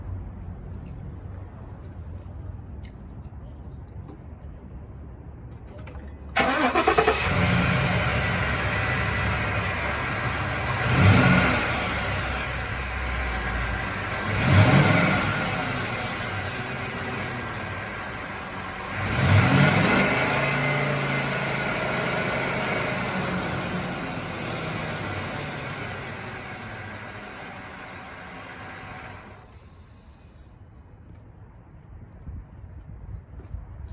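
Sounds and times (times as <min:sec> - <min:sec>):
engine cranking and starting: 0:06.3 - 0:30.3
engine idling and revving: 0:06.4 - 0:30.2.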